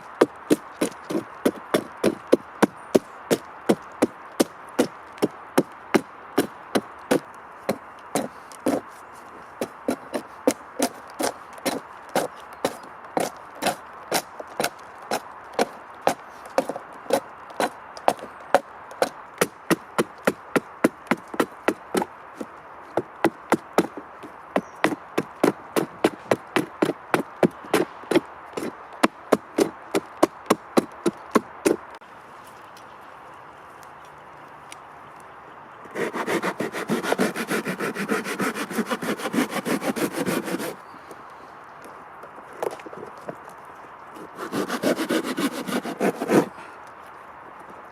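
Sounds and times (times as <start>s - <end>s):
hand tool striking wood: 36.0s - 40.8s, 44.4s - 46.5s.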